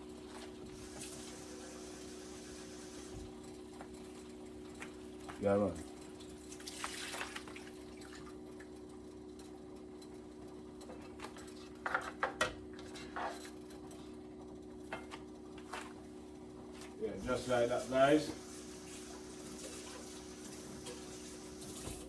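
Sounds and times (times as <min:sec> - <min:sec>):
liquid hissing in pot: 0:17.3 - 0:22.0.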